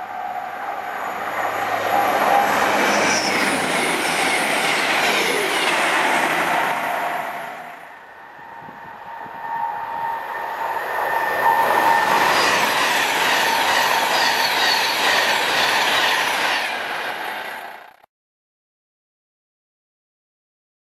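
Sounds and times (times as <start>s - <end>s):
steady whine: 0.0s - 17.9s
train passing at speed: 0.0s - 18.0s.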